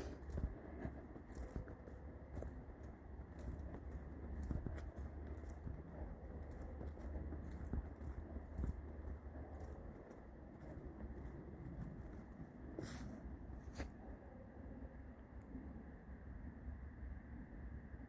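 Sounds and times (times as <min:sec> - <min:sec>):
footsteps on woodland trail: 0:00.0 - 0:14.2.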